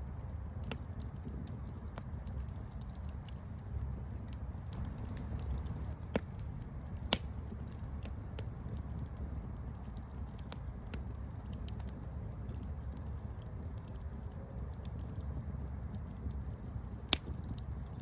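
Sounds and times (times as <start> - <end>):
campfire rumble: 0.0 - 18.0
fire crackling and popping: 0.0 - 18.0.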